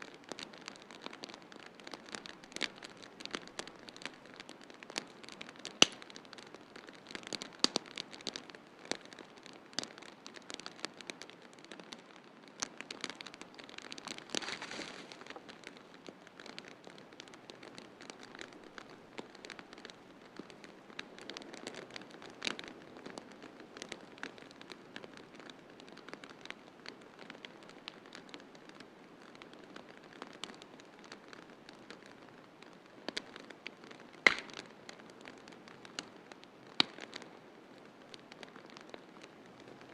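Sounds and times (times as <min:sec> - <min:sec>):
sharp pops and snaps: 0:00.0 - 0:39.9
soft steady hiss: 0:00.0 - 0:39.9
wood fire crackling: 0:00.0 - 0:39.9.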